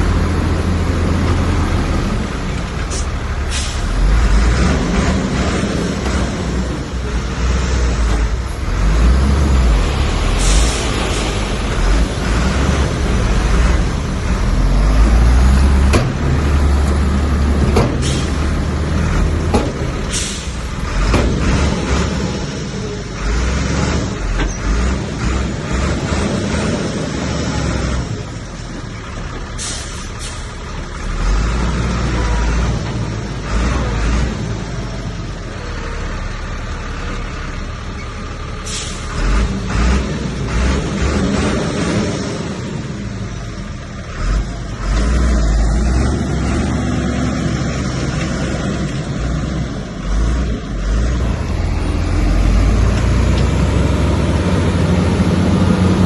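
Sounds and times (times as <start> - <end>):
bulldozer engine rumbling: 0.0 - 56.0
sharp clanks or hisses: 2.9 - 4.0, 10.3 - 11.4, 17.9 - 18.4, 20.0 - 20.6, 29.6 - 30.6, 38.6 - 39.2.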